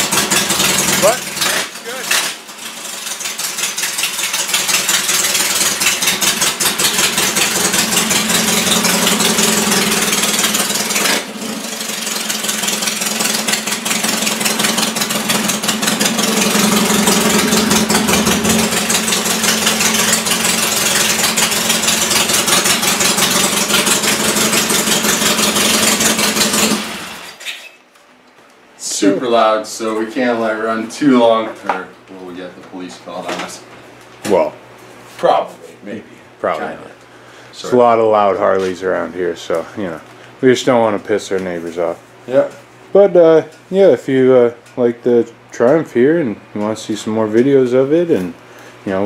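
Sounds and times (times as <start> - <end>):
loud motorcycle engine running: 0.0 - 27.4.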